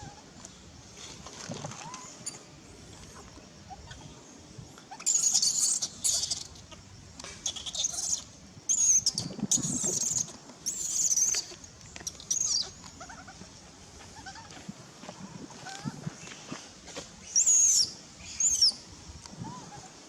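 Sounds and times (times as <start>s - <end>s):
baby monkey screeching: 4.9s - 6.6s, 7.4s - 11.5s, 12.1s - 13.3s, 17.4s - 18.7s.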